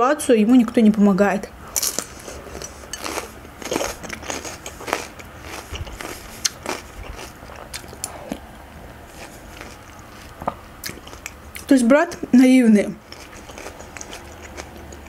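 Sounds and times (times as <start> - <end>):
wet chewing: 1.7 - 8.5, 9.1 - 12.2, 13.0 - 15.0.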